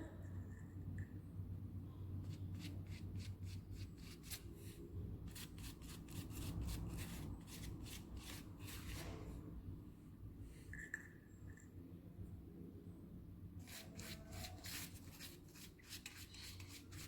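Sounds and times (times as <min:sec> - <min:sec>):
paintbrush scratchy strokes: 0:02.2 - 0:09.4, 0:13.6 - 0:17.0.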